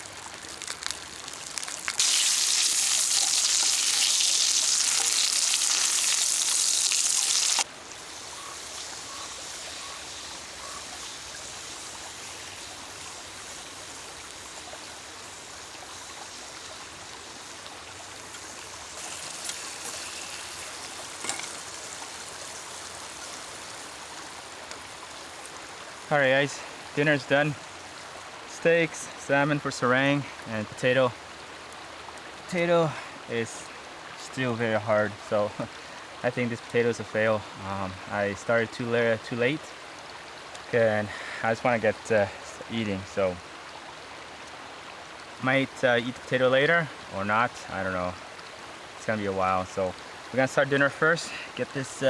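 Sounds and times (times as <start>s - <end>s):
food sizzling loudly: 0.0s - 27.8s
soft steady hiss with crackles: 0.0s - 52.0s.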